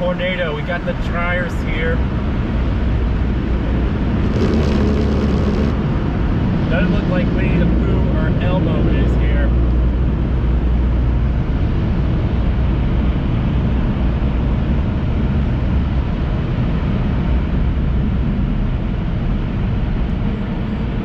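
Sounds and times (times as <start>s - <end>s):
air dryers blowing: 4.2s - 5.8s.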